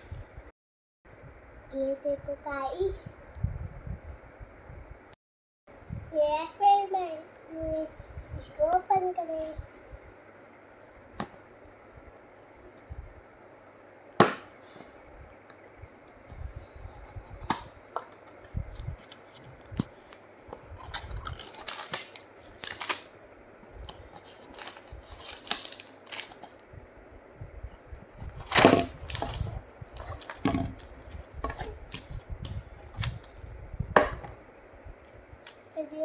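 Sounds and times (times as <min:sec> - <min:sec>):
clicks and rustles of packaging: 0:17.3 - 0:23.1, 0:23.8 - 0:26.6, 0:28.4 - 0:33.5.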